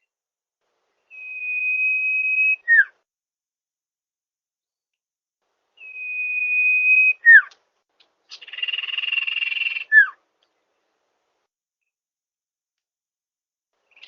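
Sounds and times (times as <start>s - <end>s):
bird whistling: 1.1s - 3.0s, 5.8s - 7.6s, 8.3s - 10.2s.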